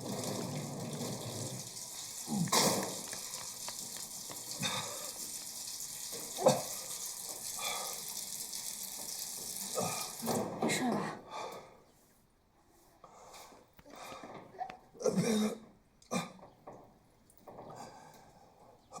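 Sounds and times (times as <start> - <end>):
food sizzling in a pan: 0.0 - 10.4.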